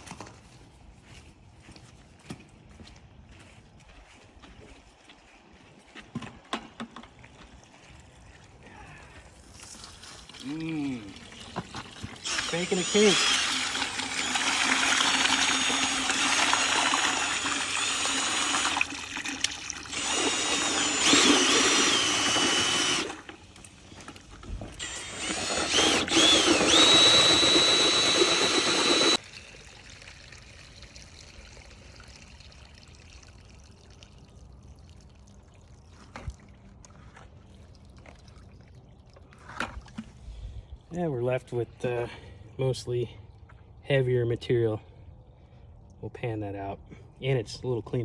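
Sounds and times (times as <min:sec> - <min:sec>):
hose water pouring into bucket: 0:09.4 - 0:23.6, 0:24.8 - 0:40.2.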